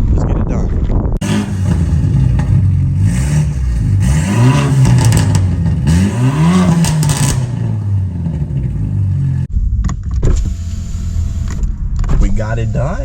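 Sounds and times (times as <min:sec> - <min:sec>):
car engine revving and idling: 0:01.2 - 0:09.5.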